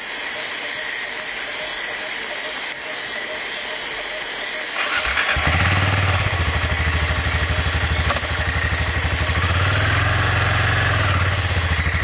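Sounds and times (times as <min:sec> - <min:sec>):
motorcycle engine idling: 0:04.8 - 0:12.0.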